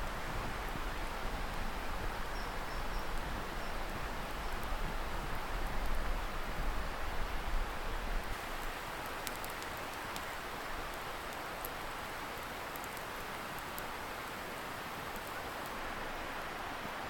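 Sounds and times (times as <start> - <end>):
distant river hiss: 0.0 - 17.0
wood fire crackling: 8.2 - 16.6.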